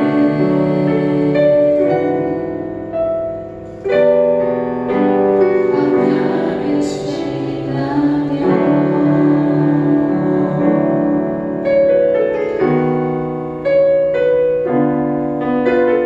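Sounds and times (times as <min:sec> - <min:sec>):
praise band playing worship song: 0:00.0 - 0:02.7, 0:04.6 - 0:11.5
keyboard chords: 0:00.0 - 0:16.0.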